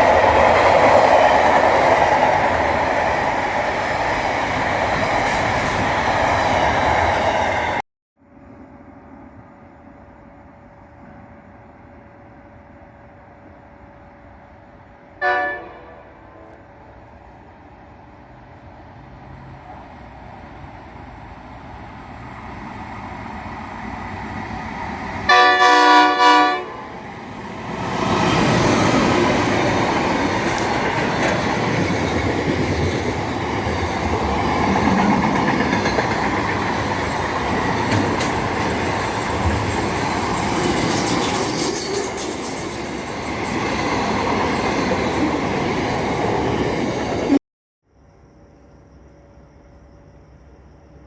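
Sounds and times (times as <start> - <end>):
train horn: 15.2 - 16.7, 25.3 - 27.0
train wheels clattering on rails: 27.4 - 47.4.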